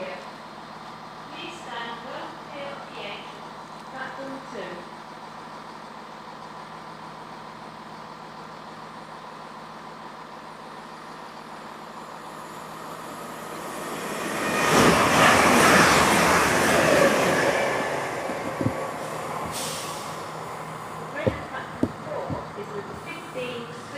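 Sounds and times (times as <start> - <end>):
train passing at speed: 11.7 - 23.9.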